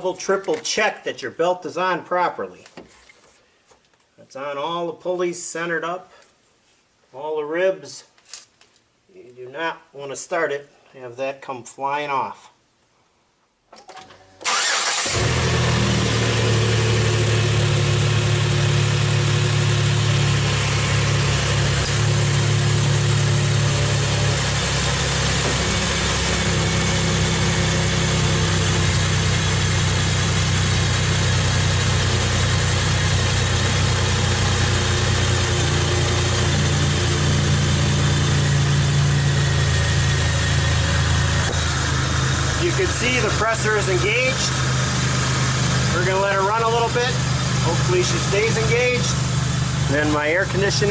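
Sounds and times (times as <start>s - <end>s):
car engine starting and idling: 14.3s - 50.9s.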